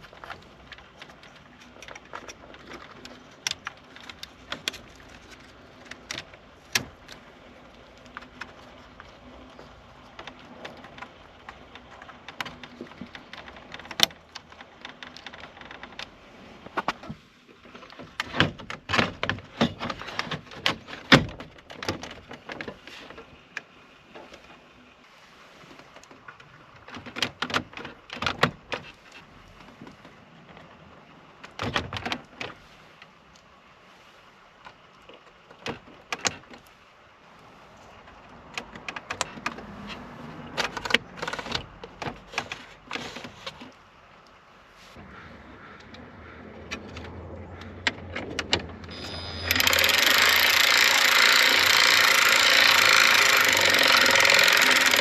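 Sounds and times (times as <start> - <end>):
hard objects clicking and rattling: 47.9 - 55.0.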